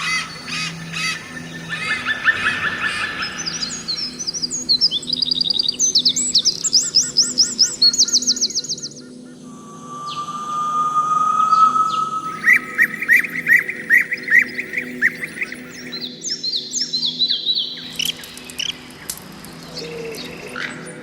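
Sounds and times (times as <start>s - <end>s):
long rising bird whistle: 0.0s - 5.4s, 9.3s - 15.9s
songbirds chirping and trilling: 0.0s - 21.0s.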